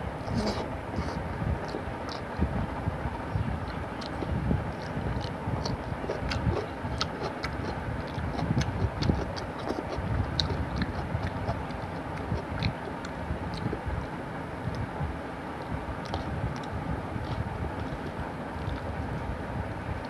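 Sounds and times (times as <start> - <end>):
low background rumble: 0.0 - 20.0
wet chewing and lip smacks: 0.4 - 2.5, 3.6 - 13.8, 15.6 - 19.0.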